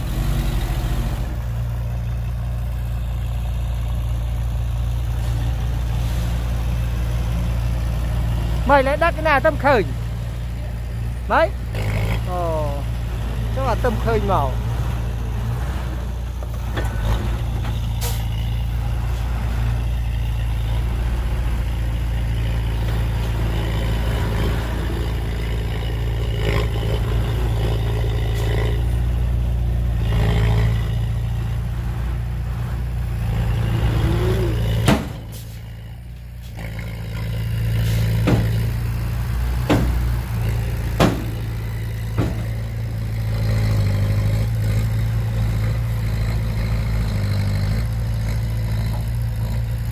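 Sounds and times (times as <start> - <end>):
heavy diesel engine running: 0.0 - 49.9
metallic clanks and knocks: 39.6 - 40.3, 40.9 - 42.6.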